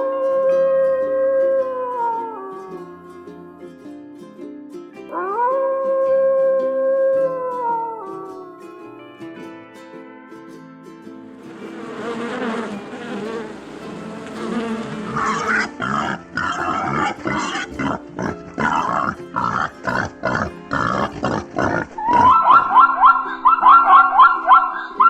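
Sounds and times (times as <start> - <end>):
background music: 0.1 - 25.0
animal grunting calls: 14.9 - 25.0
high rising animal calls: 15.0 - 25.0.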